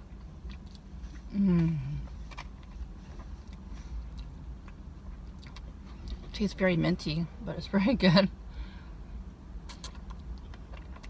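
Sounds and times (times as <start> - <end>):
person saying mmm: 1.3 - 2.0.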